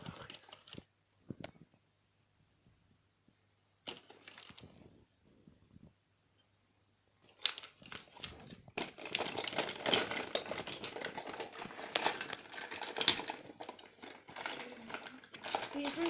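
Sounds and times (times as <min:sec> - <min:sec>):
plastic objects clicking: 0:03.8 - 0:04.8, 0:07.2 - 0:16.0.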